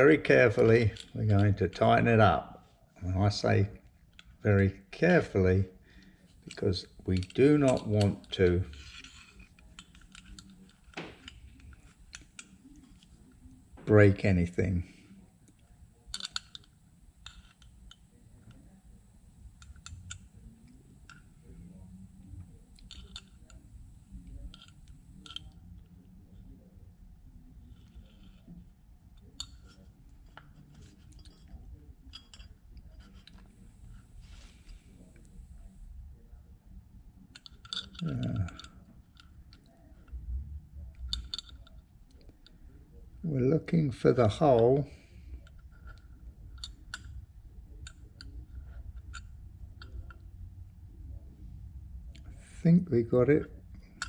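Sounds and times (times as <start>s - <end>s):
hand tool clicking on metal nut: 6.5s - 12.6s, 37.4s - 38.8s.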